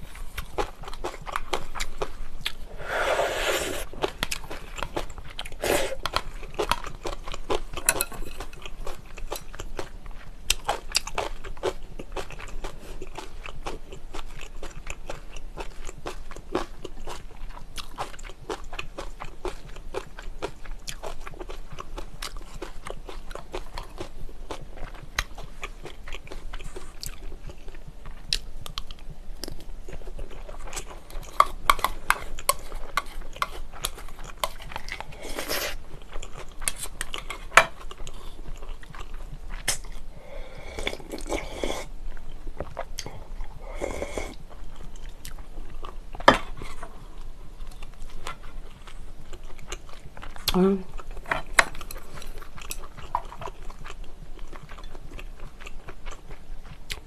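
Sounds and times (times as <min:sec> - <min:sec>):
person chewing and crunching food: 0:00.0 - 0:57.0
soup being drunk: 0:02.7 - 0:03.9.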